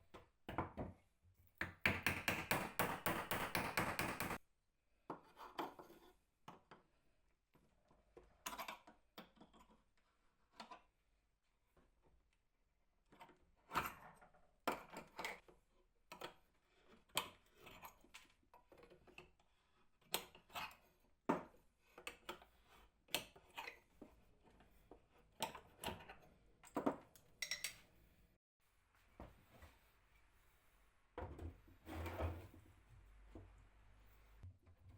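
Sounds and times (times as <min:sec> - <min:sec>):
hard objects clicking and knocking: 0:01.6 - 0:04.4.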